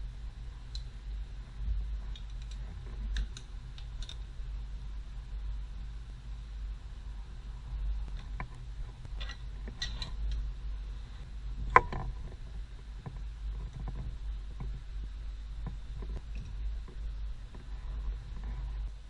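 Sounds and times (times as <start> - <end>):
steady low rumble: 0.0 - 19.0
small clicks and knocks: 2.1 - 4.3, 8.1 - 10.4, 11.7 - 12.4.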